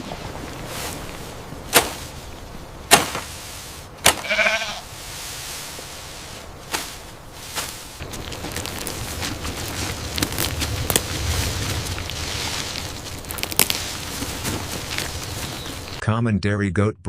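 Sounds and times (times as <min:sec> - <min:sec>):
background hiss: 0:00.0 - 0:16.0
goat bleating: 0:04.2 - 0:04.9.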